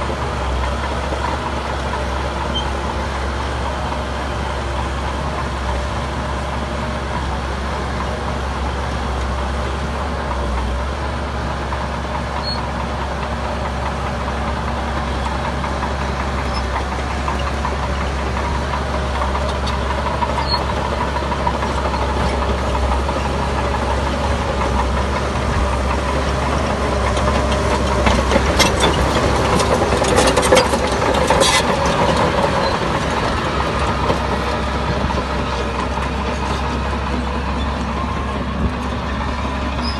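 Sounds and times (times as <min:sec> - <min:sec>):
heavy diesel machinery running: 0:00.0 - 0:39.9
metallic clanks and rattles: 0:26.8 - 0:34.4.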